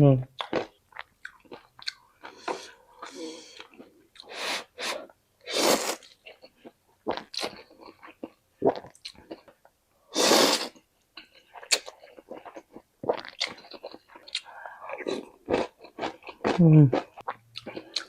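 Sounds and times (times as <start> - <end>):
crunching and chewing food: 0.3 - 4.3, 6.0 - 9.7, 11.1 - 18.0
loud noodle slurps: 4.3 - 6.1, 10.1 - 10.8.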